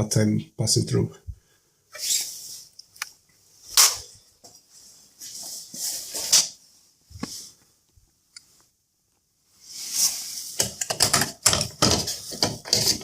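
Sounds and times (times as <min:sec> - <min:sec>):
plastic scraping on plastic: 0:10.6 - 0:13.0.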